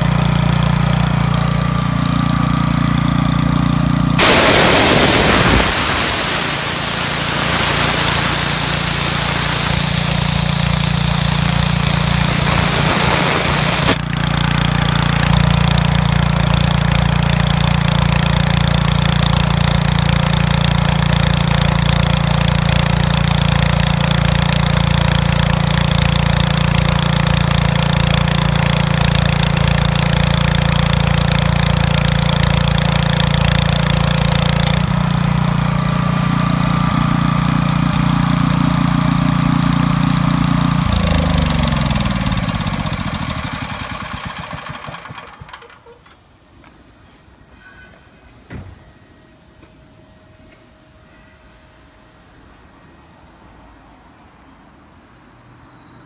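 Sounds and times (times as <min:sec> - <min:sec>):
air compressor engine running: 0:00.0 - 0:46.0
loud rush of air: 0:04.2 - 0:14.0.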